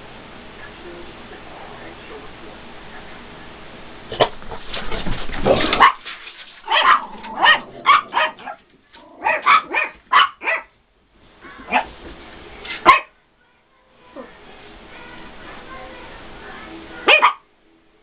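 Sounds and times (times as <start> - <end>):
dog barking: 5.8 - 6.0, 6.7 - 8.6, 9.2 - 10.8, 11.6 - 11.9, 12.8 - 13.2, 17.0 - 17.5.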